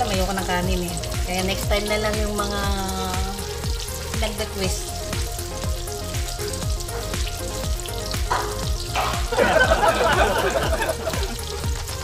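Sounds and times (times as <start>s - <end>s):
background music with beat: 0.0s - 12.0s
chicken deep-frying in oil: 0.0s - 12.0s.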